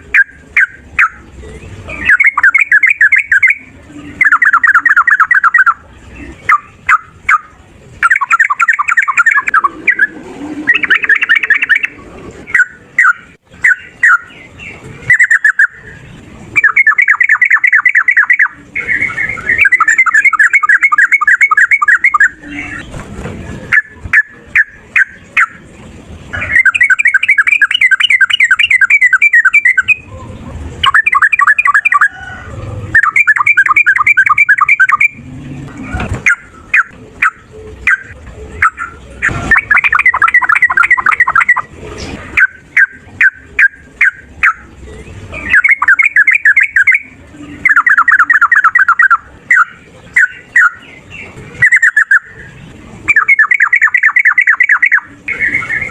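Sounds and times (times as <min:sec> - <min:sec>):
bird singing chattering runs: 0:00.0 - 0:10.1, 0:10.7 - 0:23.0, 0:26.3 - 0:30.1, 0:30.8 - 0:32.2, 0:32.9 - 0:35.3, 0:36.2 - 0:41.7, 0:42.4 - 0:55.9.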